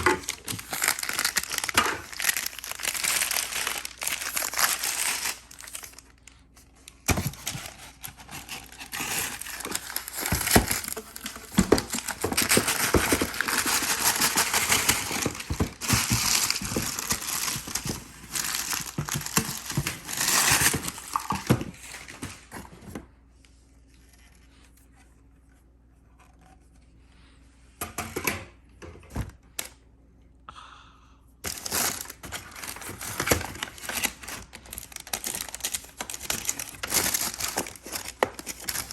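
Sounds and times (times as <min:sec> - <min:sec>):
plastic wrap crinkling and tearing: 0:00.0 - 0:22.3, 0:31.4 - 0:38.9.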